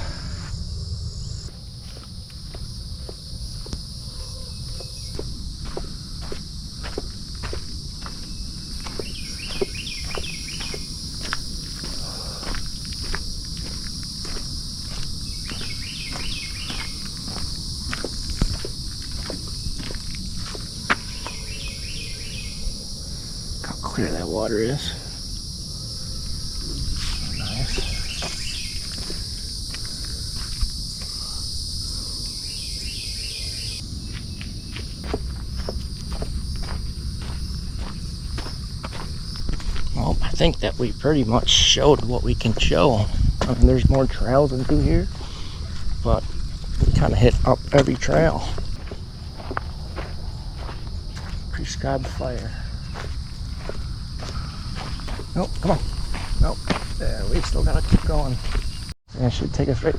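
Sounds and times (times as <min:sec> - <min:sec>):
high insect drone: 0:00.0 - 0:59.9
footsteps on a trail: 0:01.5 - 0:22.5, 0:25.2 - 0:31.8, 0:33.8 - 0:59.0
bird chirping: 0:08.3 - 0:10.9, 0:15.3 - 0:17.0, 0:21.0 - 0:22.7, 0:26.8 - 0:28.9
wind rumble on microphone: 0:33.8 - 0:51.5.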